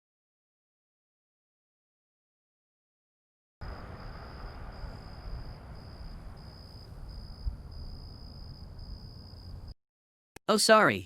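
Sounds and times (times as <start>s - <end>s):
low rumble and hiss: 3.6s - 9.7s
crickets chirping: 3.6s - 9.8s.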